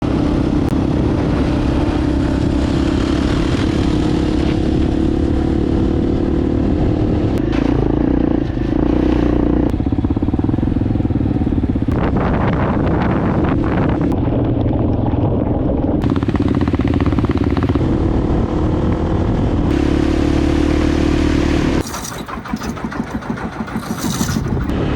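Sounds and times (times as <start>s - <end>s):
motorcycle engine running: 0.2s - 24.9s.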